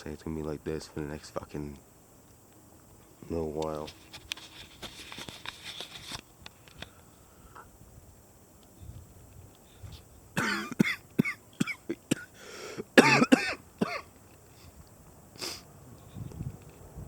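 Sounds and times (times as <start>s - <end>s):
man coughing: 10.4s - 12.3s, 13.0s - 14.1s.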